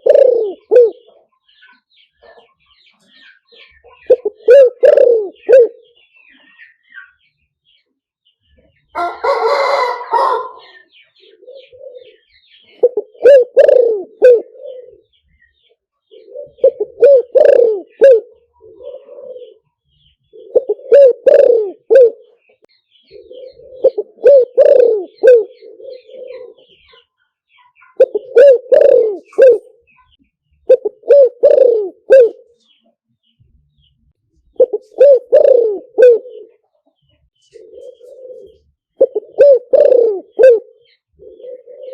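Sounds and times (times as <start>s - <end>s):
dove cooing: 0.0s - 1.2s, 3.5s - 6.6s, 9.0s - 15.2s, 16.0s - 27.0s, 27.9s - 30.0s, 30.6s - 32.7s, 34.5s - 36.8s, 37.4s - 41.9s.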